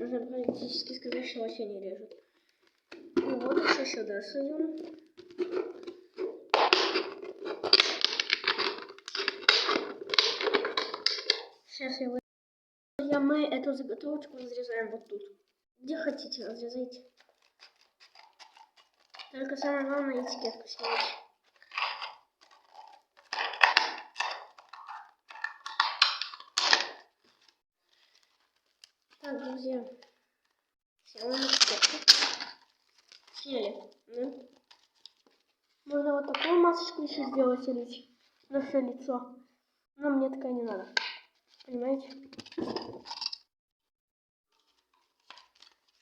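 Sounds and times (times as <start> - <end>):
plastic crackling and crinkling: 2.2 - 11.6, 16.1 - 38.6, 40.7 - 43.5, 44.5 - 46.0
scissors cutting plastic bottle: 4.8 - 11.5, 17.1 - 27.6.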